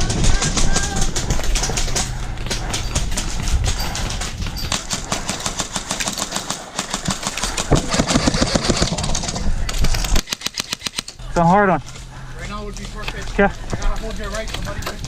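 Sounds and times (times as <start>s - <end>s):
airsoft guns firing full-auto: 4.9s - 9.4s.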